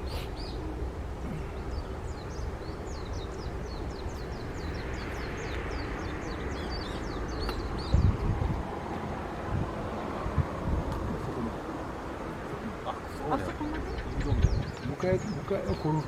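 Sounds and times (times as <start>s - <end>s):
small bird chirping: 1.5s - 8.2s.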